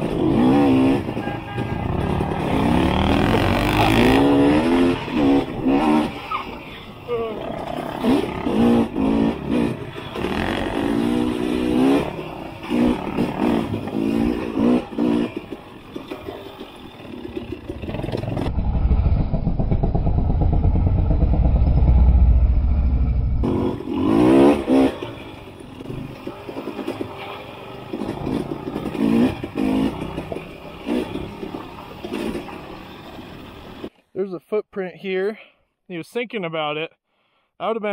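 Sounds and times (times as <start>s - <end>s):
motorcycle engine revving: 0.0s - 6.3s, 7.2s - 33.8s
heavy low rumble: 18.2s - 23.5s.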